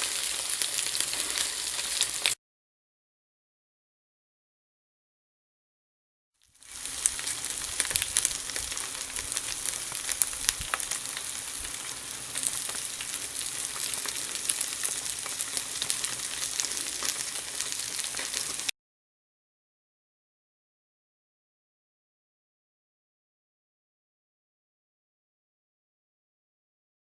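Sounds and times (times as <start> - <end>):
food sizzling on a grill: 0.0 - 2.4, 6.4 - 18.7.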